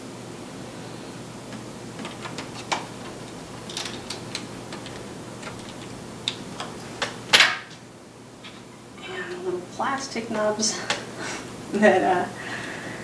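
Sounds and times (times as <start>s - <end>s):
clicks of screws and plastic parts: 1.5s - 7.5s
plastic parts clattering: 1.5s - 7.8s.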